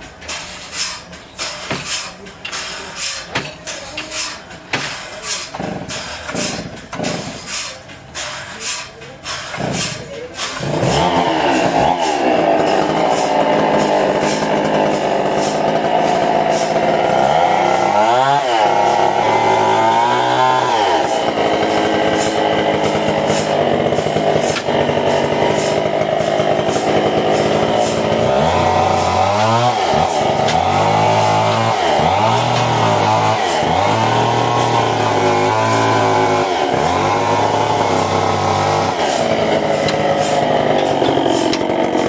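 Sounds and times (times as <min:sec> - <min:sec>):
chainsaw engine revving: 0:09.5 - 0:42.0.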